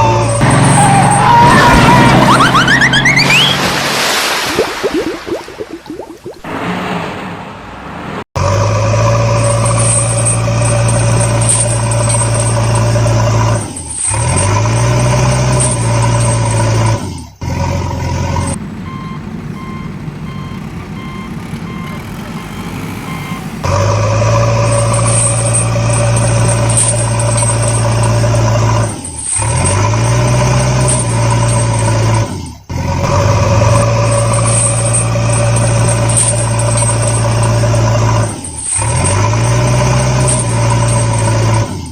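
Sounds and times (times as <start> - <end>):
electronic reversing beeps: 0.0 - 3.6, 18.9 - 26.1
truck engine running: 0.0 - 4.0, 6.5 - 41.9.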